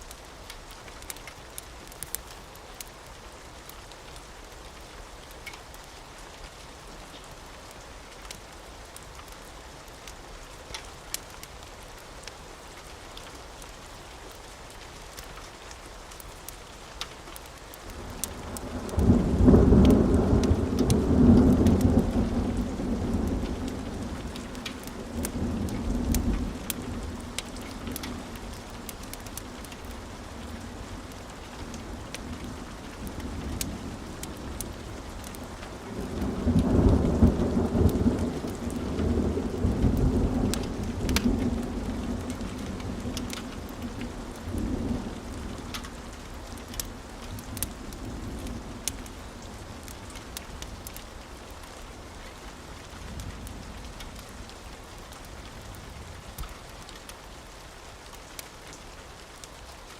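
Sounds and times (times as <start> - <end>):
steady rain: 0.0 - 59.9
rumble of thunder: 18.0 - 51.1.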